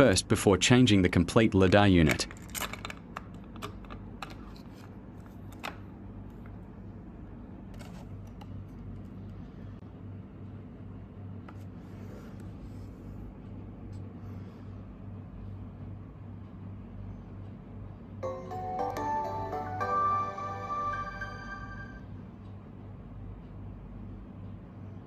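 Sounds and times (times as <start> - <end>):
plastic parts clicking: 2.0 - 4.9.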